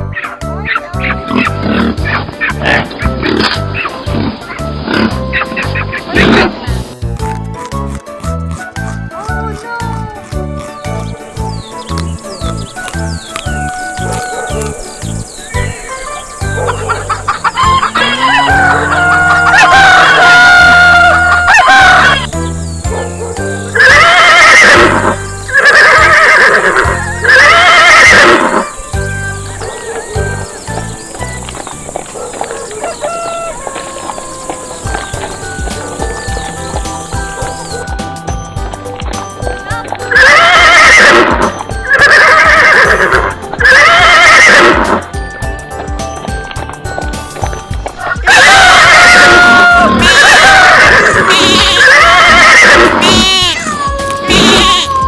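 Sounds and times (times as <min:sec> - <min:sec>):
background music: 0:00.0 - 0:55.0
horse whinnying: 0:01.2 - 0:06.7, 0:16.6 - 0:22.3, 0:23.7 - 0:31.0, 0:40.1 - 0:45.1, 0:48.2 - 0:55.0
rooster crowing: 0:13.6 - 0:15.0, 0:15.8 - 0:22.3, 0:26.6 - 0:31.1, 0:32.1 - 0:36.2, 0:48.0 - 0:55.0.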